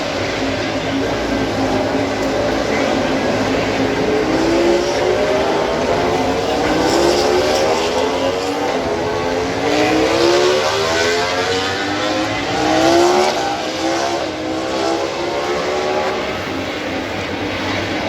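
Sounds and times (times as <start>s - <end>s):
racing motorcycles accelerating: 0.0s - 18.0s.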